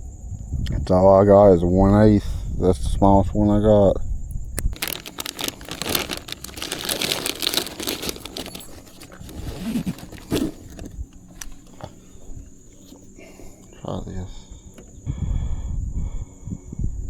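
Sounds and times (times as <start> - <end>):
plastic packaging crinkling: 4.3 - 13.6.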